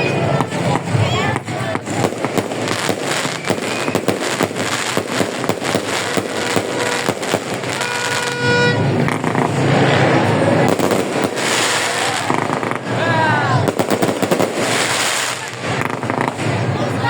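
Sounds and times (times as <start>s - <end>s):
fireworks bangs and crackles: 0.0s - 17.0s
horn toot: 5.7s - 12.3s.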